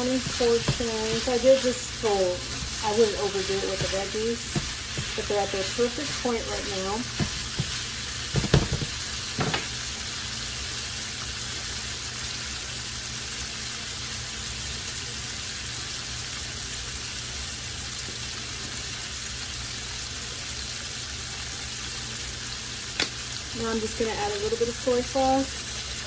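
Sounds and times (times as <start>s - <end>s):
vegetables sizzling in frying pan: 0.0s - 26.0s
sharp knocks: 7.2s - 9.7s.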